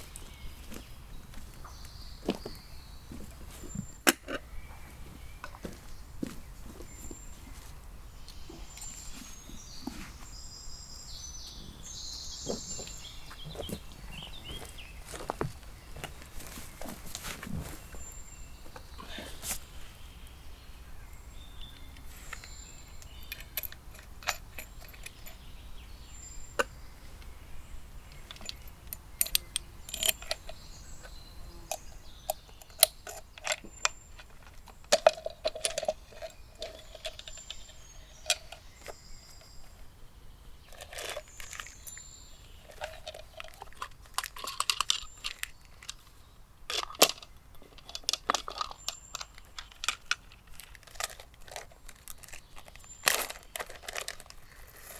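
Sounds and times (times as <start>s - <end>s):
rustling: 11.5s - 20.0s, 40.6s - 54.9s
metallic clinks and taps: 23.0s - 25.4s, 28.1s - 30.6s.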